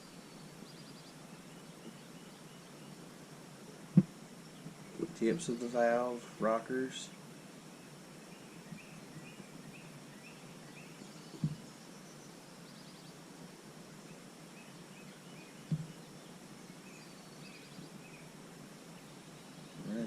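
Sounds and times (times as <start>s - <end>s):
birds chirping: 0.0s - 20.0s
soft knocks: 11.4s - 11.6s, 15.7s - 15.9s.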